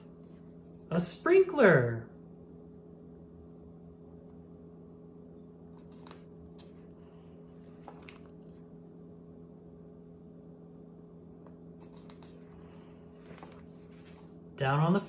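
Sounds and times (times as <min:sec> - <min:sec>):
steady low hum: 0:00.0 - 0:15.0
paper pages rustling: 0:05.7 - 0:08.9, 0:11.8 - 0:14.4.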